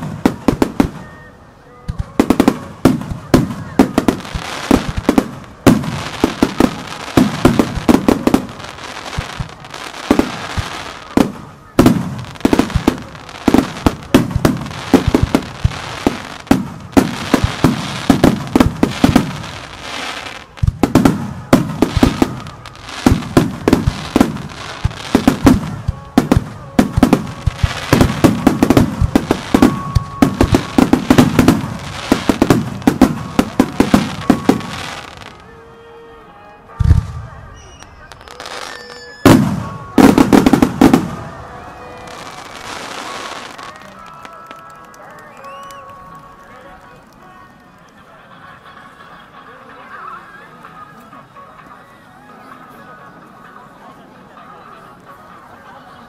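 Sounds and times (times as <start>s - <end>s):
fireworks bursting: 0.0s - 48.0s
fireworks crackling: 0.0s - 51.0s.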